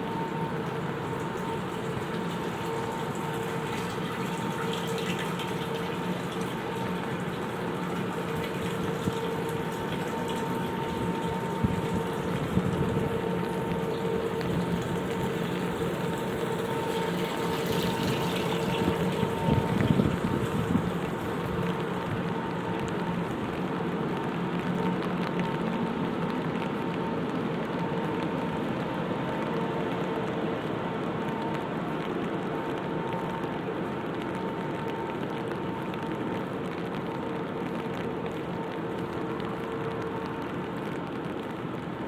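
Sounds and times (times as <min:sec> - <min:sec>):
running water rushing: 0:00.0 - 0:23.2
constant hum: 0:00.0 - 0:42.0.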